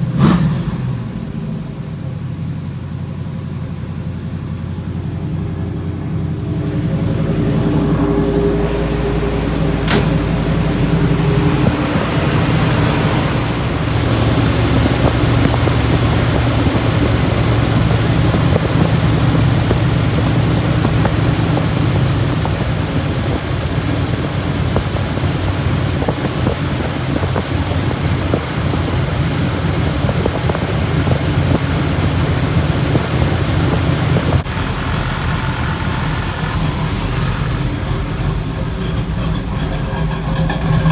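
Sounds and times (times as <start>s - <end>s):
car engine idling: 0.0s - 40.9s
sharp click: 9.8s - 10.2s.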